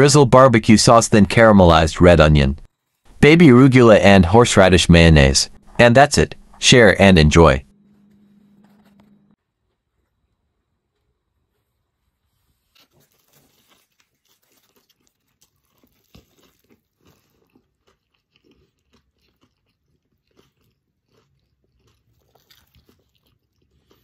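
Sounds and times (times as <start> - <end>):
person biting and chewing: 12.6 - 24.0.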